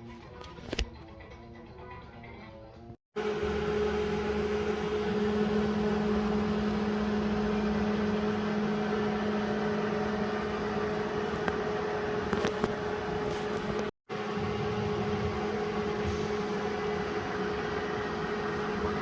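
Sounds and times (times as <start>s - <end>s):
electric motor humming and whirring: 3.2s - 19.0s.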